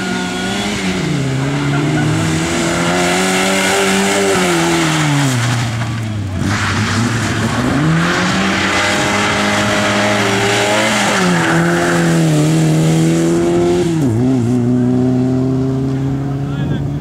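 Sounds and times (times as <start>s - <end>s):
rally car engine revving: 0.0s - 17.0s
hissing tyre noise: 0.4s - 13.0s.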